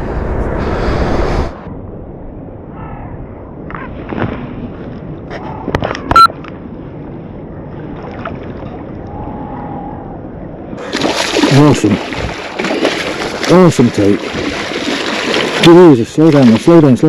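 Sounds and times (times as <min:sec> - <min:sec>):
water sloshing and lapping: 0:07.8 - 0:09.2, 0:10.8 - 0:17.0
water splashing: 0:10.8 - 0:17.0.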